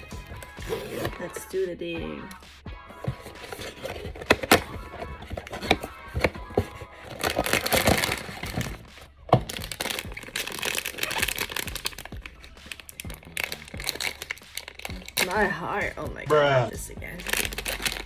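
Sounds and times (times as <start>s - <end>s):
cardboard cracking: 0.0s - 1.3s, 2.9s - 15.4s, 17.3s - 18.0s
foil bag crinkling and tearing: 3.0s - 15.7s, 17.2s - 18.0s.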